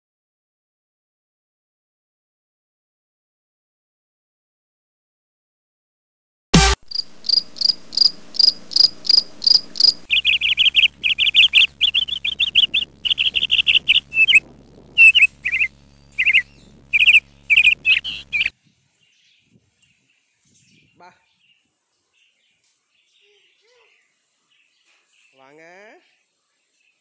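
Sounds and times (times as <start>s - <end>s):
caged small birds chirping: 6.9s - 27.0s.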